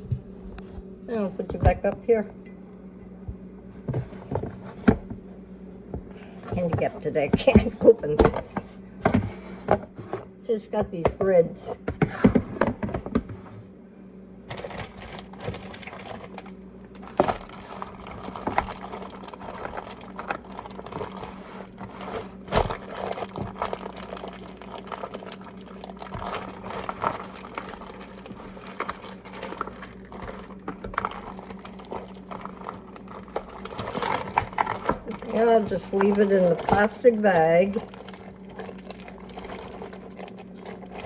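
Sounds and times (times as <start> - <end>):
steady low hum: 0.0 - 41.0
plastic bag crinkling: 14.5 - 41.0.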